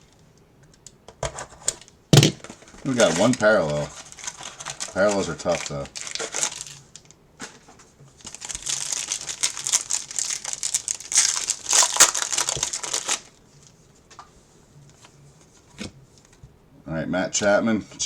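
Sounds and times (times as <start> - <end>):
plastic wrapper tearing and crinkling: 2.4 - 7.2, 8.2 - 13.4.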